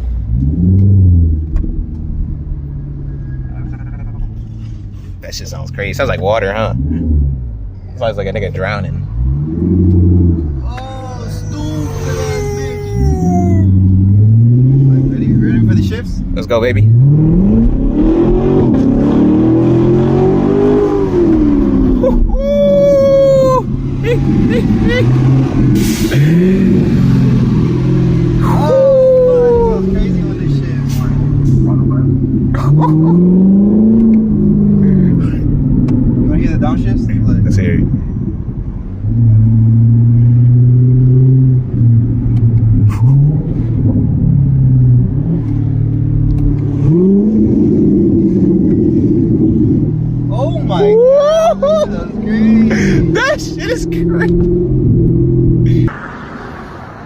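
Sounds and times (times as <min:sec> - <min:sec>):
car engine accelerating hard: 0:05.8 - 0:57.0
person whooping: 0:10.8 - 0:13.8, 0:22.0 - 0:25.1, 0:28.4 - 0:30.0, 0:50.8 - 0:52.0.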